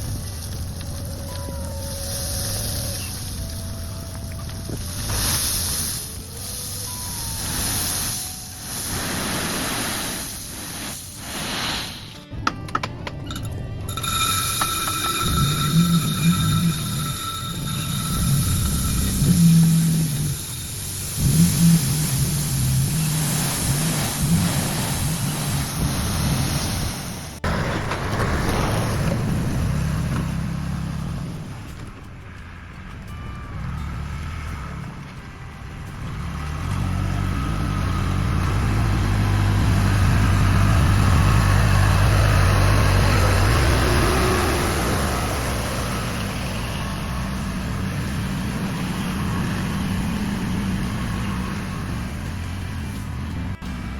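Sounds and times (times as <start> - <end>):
hiss: 0.0 - 12.3, 15.5 - 27.4
truck engine running: 12.2 - 26.7, 27.4 - 53.9.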